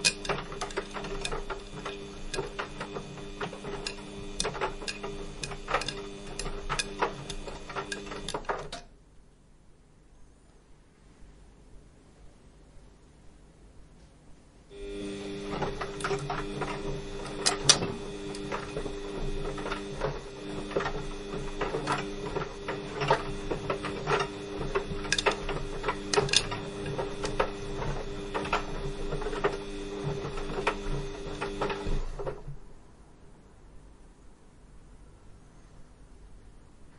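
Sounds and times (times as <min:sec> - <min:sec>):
washing machine motor hum: 0:00.0 - 0:08.9, 0:14.7 - 0:32.8.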